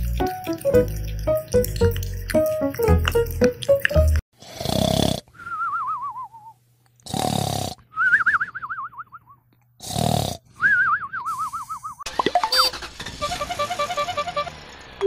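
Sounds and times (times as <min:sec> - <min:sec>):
cartoon snoring: 0:04.4 - 0:05.4, 0:07.0 - 0:07.9, 0:09.8 - 0:10.5.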